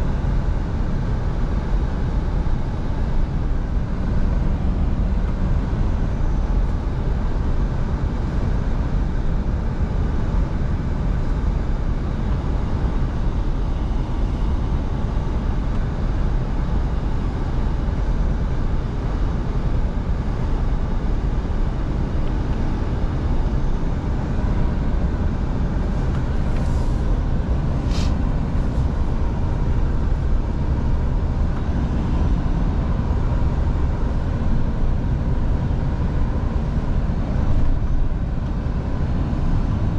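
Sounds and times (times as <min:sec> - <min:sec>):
truck engine and road rumble: 0:00.0 - 0:39.9
brief high hiss: 0:27.8 - 0:28.2.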